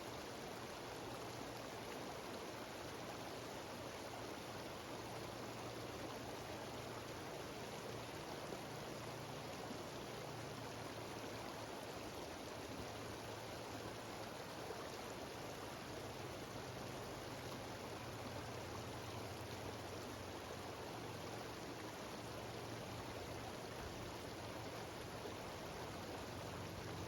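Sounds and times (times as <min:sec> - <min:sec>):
stream cascading down waterfall: 0:00.0 - 0:27.0.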